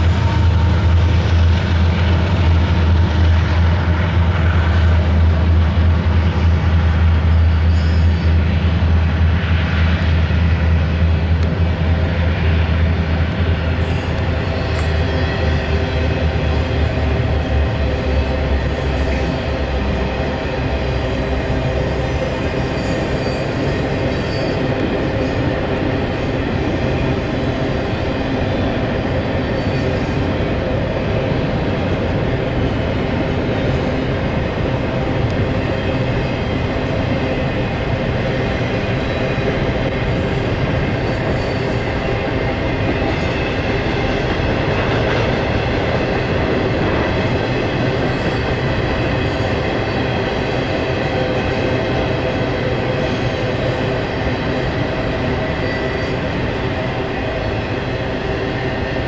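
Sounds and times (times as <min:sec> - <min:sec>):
diesel locomotives rumbling: 0:00.0 - 0:59.0
freight cars rolling on rails: 0:00.0 - 0:59.0.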